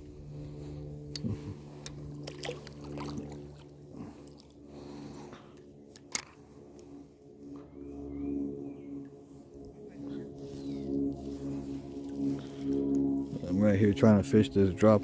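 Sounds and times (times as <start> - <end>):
steady low hum: 0.0 - 15.0
water splashing against kayak: 2.2 - 4.6.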